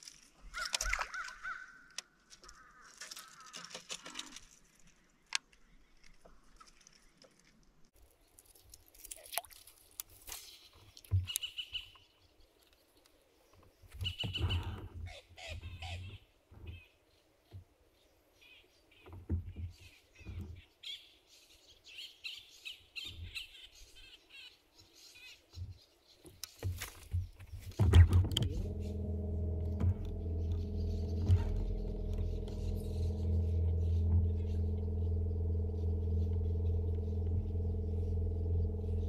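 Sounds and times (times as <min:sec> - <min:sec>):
wild birds chirping: 0:00.4 - 0:07.3, 0:10.4 - 0:39.0
low thumps and clicks: 0:26.4 - 0:39.0.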